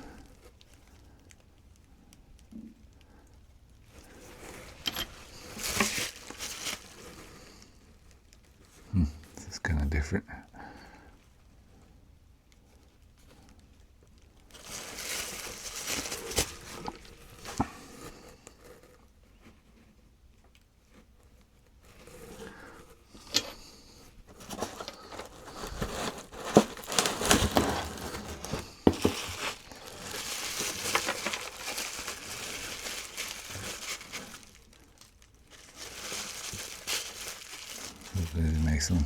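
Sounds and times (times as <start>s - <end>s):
packing wrap crinkling: 3.8s - 8.7s, 12.8s - 19.2s, 21.7s - 39.0s.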